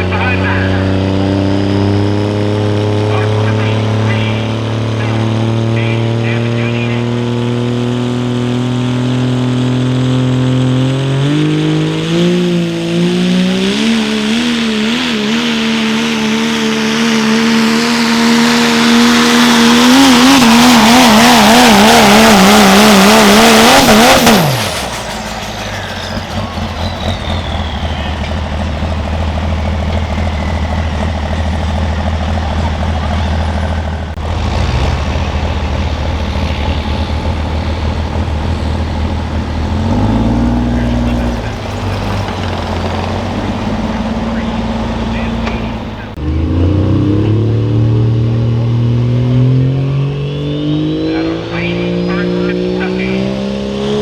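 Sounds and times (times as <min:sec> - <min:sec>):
diesel truck engine revving: 0:00.0 - 0:54.0
high turbo whistle: 0:24.0 - 0:29.3, 0:49.8 - 0:51.8.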